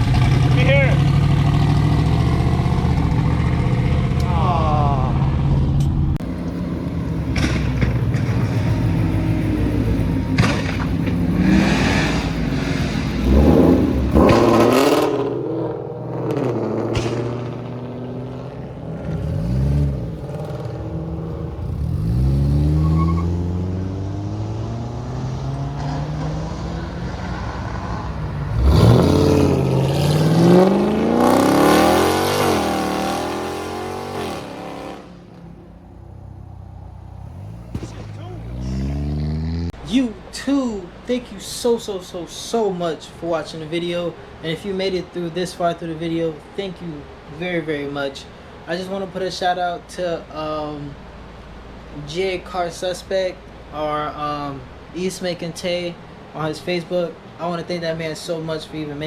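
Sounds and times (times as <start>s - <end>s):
car engine idling and revving: 0.0s - 39.8s.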